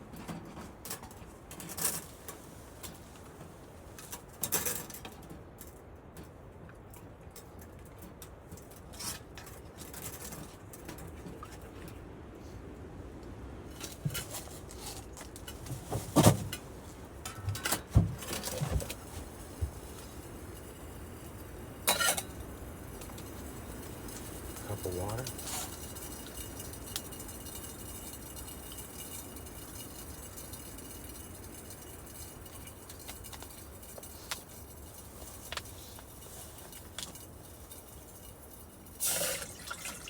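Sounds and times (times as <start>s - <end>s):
wind rushing against tent: 8.1s - 40.0s
camp cooking gear clinking: 13.7s - 40.0s.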